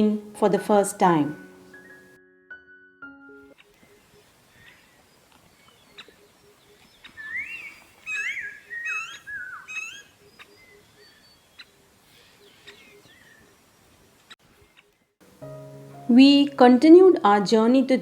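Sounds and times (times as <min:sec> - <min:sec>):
songbird warbling: 0:05.6 - 0:13.4.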